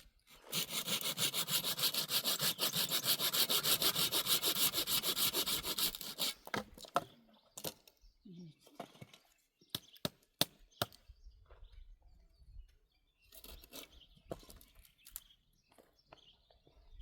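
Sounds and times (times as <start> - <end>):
fast rubbing strokes: 0.5 - 6.3.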